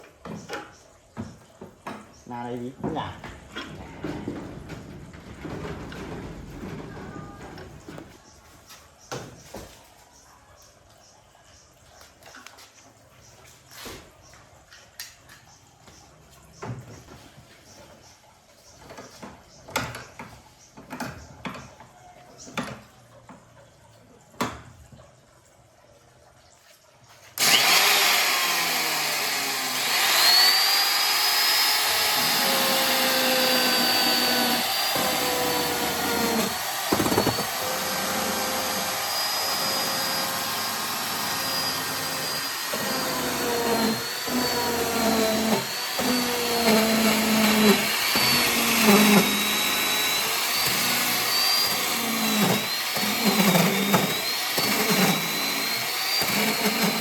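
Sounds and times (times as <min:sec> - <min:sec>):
electric motor whining: 0:27.4 - 0:57.0.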